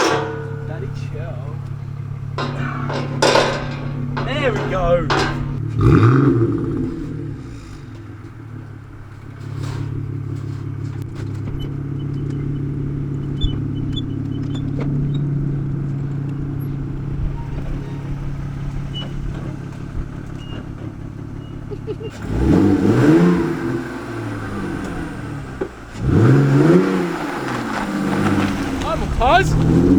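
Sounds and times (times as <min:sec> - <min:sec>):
car engine idling and revving: 0:00.0 - 0:29.9.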